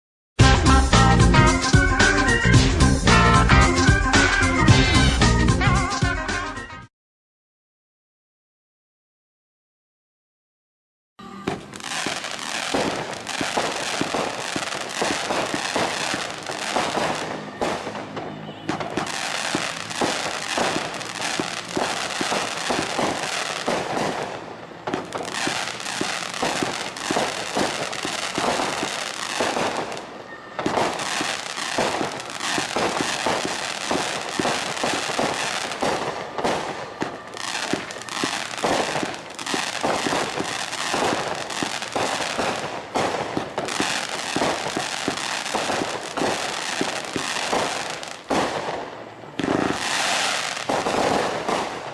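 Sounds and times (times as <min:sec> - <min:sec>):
firework crackling and popping: 0:11.4 - 0:51.9.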